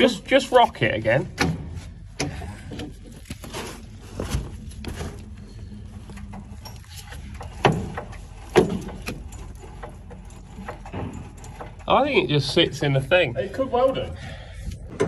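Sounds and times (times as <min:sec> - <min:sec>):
steady low hum: 0:00.0 - 0:15.0
radiator knocking and clattering: 0:04.1 - 0:14.1.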